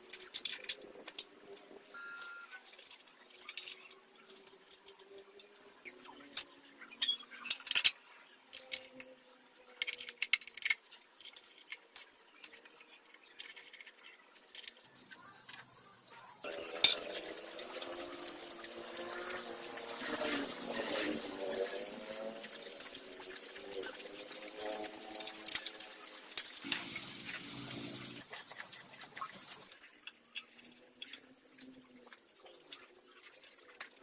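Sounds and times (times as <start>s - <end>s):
metal parts and tools clinking: 0.0s - 5.5s, 6.2s - 15.8s, 16.4s - 27.1s.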